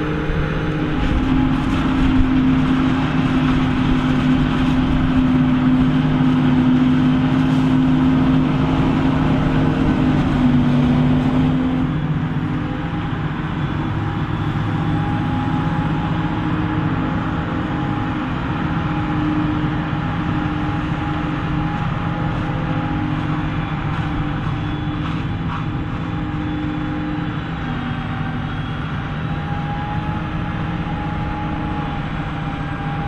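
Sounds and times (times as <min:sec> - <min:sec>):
big diesel engine droning: 0:00.0 - 0:33.0.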